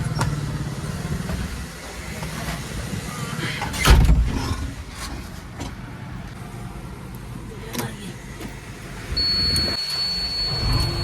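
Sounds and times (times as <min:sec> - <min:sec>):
diesel engine chugging: 0:00.0 - 0:03.8.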